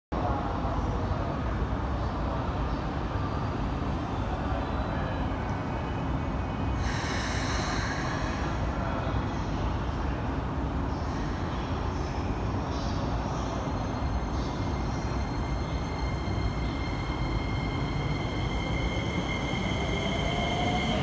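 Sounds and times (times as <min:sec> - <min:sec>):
low rumble of trains: 0:00.1 - 0:21.0
air brakes hissing: 0:06.8 - 0:08.7, 0:11.0 - 0:11.7.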